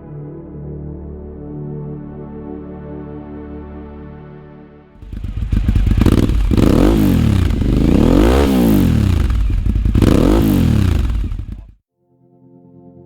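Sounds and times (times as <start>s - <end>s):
motorcycle engine revving: 5.0s - 11.8s.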